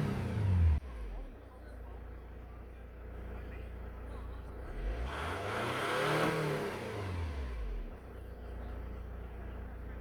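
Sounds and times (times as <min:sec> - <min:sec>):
diesel engine idling and revving: 0:00.0 - 0:10.0.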